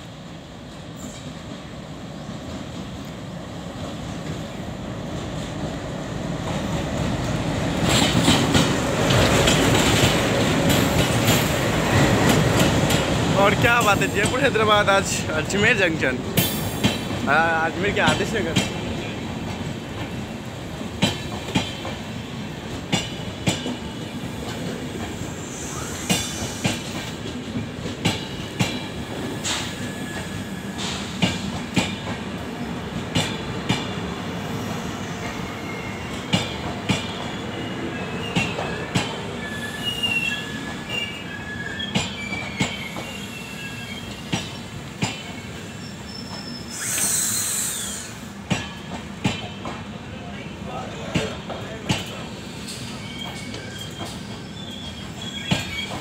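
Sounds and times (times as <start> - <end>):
wheels clacking over rail joints: 6.4 - 15.2
thin wheel squeal: 39.4 - 44.2, 45.7 - 48.2, 52.6 - 56.0
short hiss: 46.7 - 48.3.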